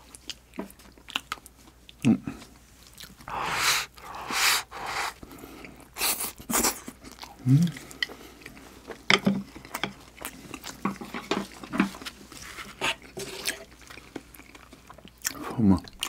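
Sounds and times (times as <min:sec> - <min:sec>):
wet chewing and lip smacking: 0:00.0 - 0:02.2, 0:02.8 - 0:09.0, 0:13.4 - 0:16.0
sharp breaths: 0:03.2 - 0:06.3.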